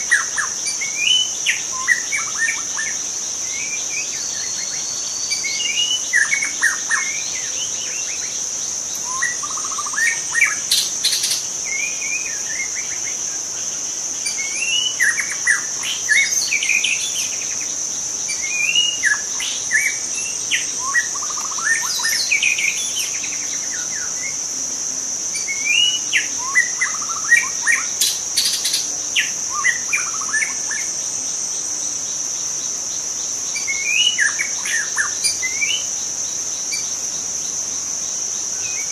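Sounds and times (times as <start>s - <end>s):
bird whistled song: 0.0s - 8.4s, 9.0s - 13.2s, 14.2s - 17.7s, 18.3s - 24.4s, 25.4s - 30.9s, 33.5s - 35.9s
high-pitched insect drone: 0.0s - 38.9s.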